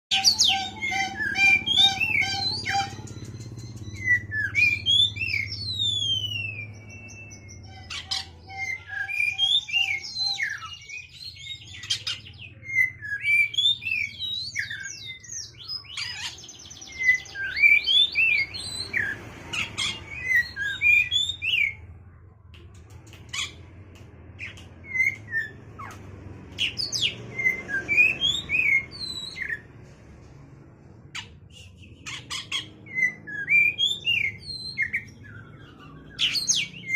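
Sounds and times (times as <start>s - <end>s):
songbird singing whistled song: 0.1s - 21.8s, 24.4s - 29.6s, 31.2s - 36.9s.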